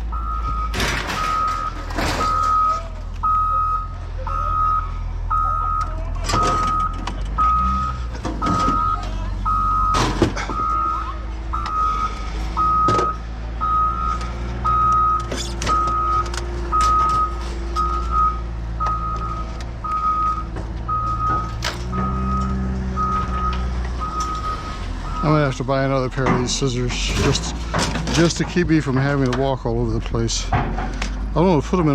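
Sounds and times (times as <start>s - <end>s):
back-up alarm beeping: 0.0s - 25.4s
diesel engine running: 0.0s - 31.9s
metallic clanks and knocks: 0.6s - 3.3s, 20.5s - 22.6s, 26.0s - 31.3s.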